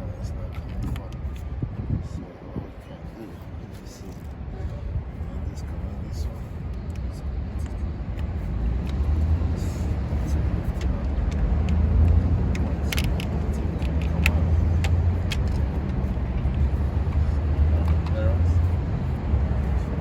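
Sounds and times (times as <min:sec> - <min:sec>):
vehicle engine running: 0:04.4 - 0:20.0
hand tools clicking on metal: 0:10.7 - 0:16.6.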